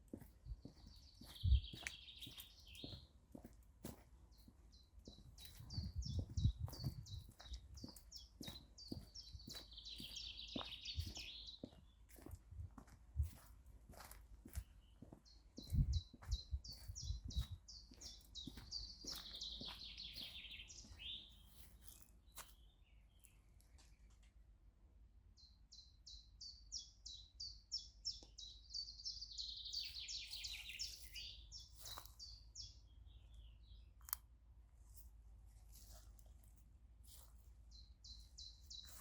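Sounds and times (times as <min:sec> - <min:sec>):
footsteps on a path: 0:00.0 - 0:22.6, 0:29.4 - 0:32.4, 0:34.9 - 0:39.0.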